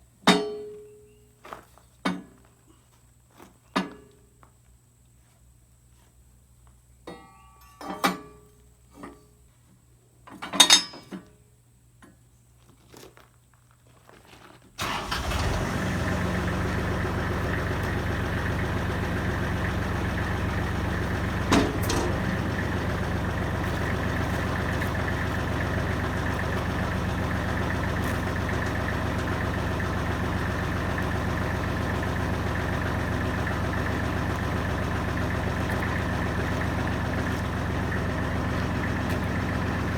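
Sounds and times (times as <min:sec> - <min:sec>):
diesel engine running steadily: 0:14.8 - 0:39.9.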